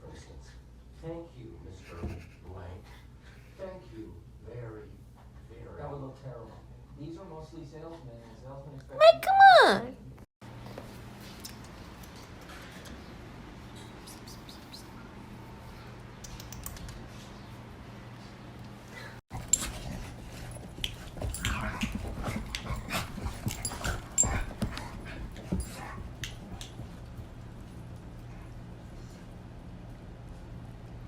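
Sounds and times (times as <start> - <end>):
pet clicks and scuffles: 19.3 - 28.2.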